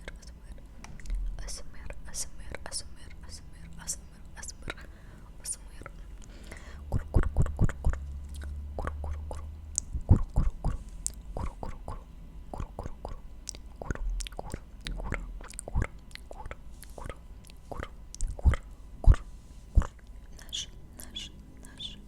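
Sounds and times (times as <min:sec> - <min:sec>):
wet mouth clicks and smacks: 0:06.9 - 0:21.8.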